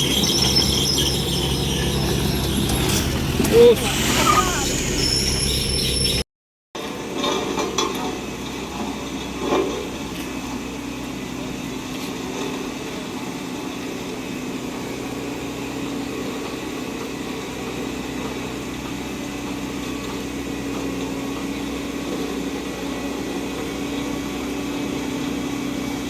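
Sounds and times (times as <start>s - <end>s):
diesel engine running: 0.0s - 6.2s.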